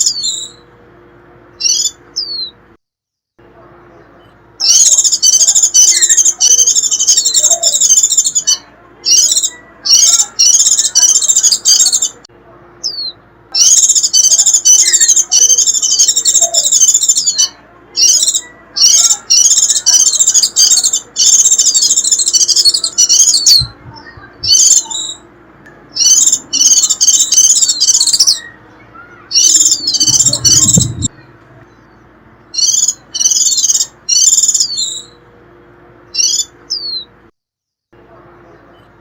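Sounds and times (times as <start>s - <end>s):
bird shrill twittering call: 1.6s - 2.6s, 4.6s - 12.2s, 12.8s - 25.2s, 25.9s - 31.2s, 31.8s - 35.2s, 36.1s - 37.1s
brief low rumble: 29.8s - 31.8s.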